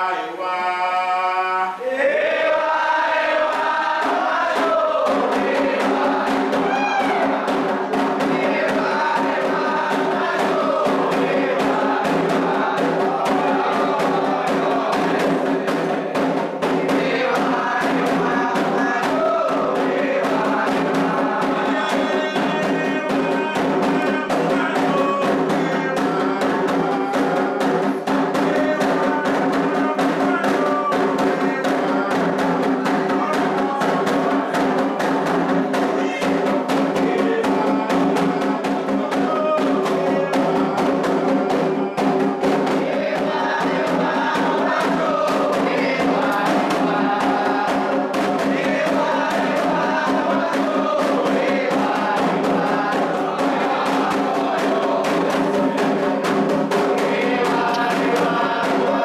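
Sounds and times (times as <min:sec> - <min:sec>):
group singing: 0:00.0 - 0:59.0
hand drums playing fast rhythm: 0:02.5 - 0:59.0.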